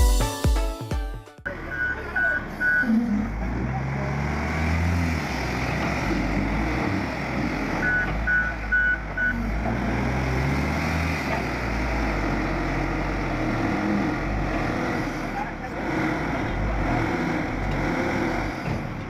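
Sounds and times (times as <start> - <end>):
heavy vehicle engine running: 1.5 - 19.0
reversing alarm beeps: 1.7 - 2.9, 7.8 - 9.4.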